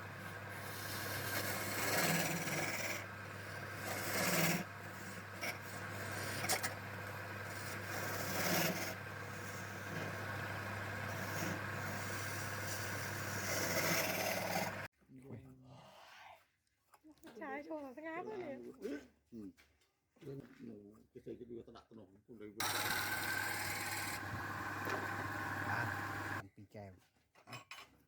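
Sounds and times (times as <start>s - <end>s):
low motor hum: 0.0s - 14.9s, 22.6s - 26.4s
wood being sanded: 0.0s - 14.9s, 22.6s - 26.4s.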